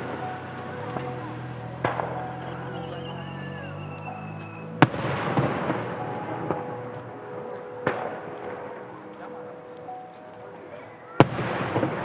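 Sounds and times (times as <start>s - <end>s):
fireworks bangs: 0.0s - 12.0s
small firework pops: 0.1s - 3.2s.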